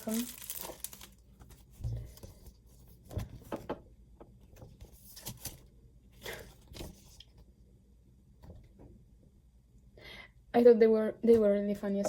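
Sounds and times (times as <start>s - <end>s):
packaging rustling and tearing: 0.0s - 1.6s.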